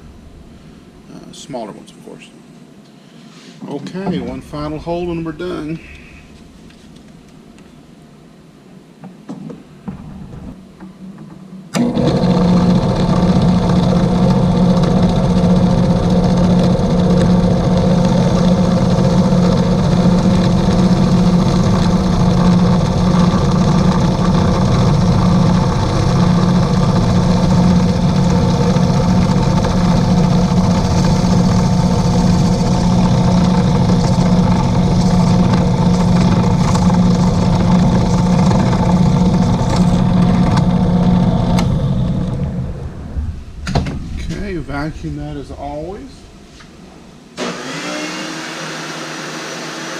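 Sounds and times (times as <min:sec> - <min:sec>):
electric drill boring: 0:11.8 - 0:42.8, 0:47.4 - 0:49.9.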